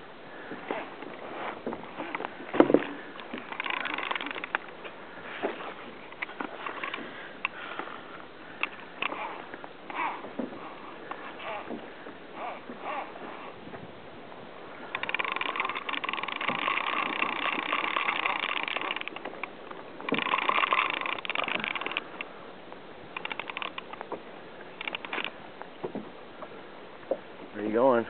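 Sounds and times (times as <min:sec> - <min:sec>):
fishing reel drag buzzing: 0:00.7 - 0:07.8, 0:08.6 - 0:13.6, 0:14.8 - 0:22.3, 0:23.2 - 0:24.0, 0:24.7 - 0:25.4.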